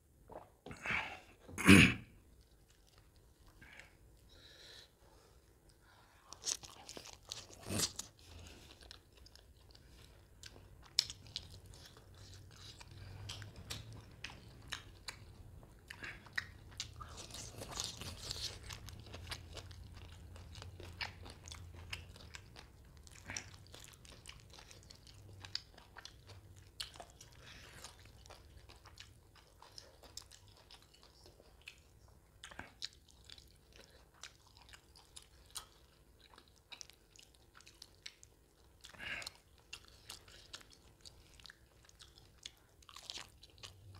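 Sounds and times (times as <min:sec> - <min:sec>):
person biting and chewing: 0:06.3 - 0:09.8, 0:15.9 - 0:26.2.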